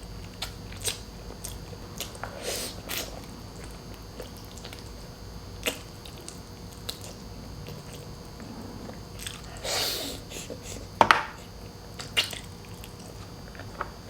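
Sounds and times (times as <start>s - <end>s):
person chewing food: 0.2s - 13.8s.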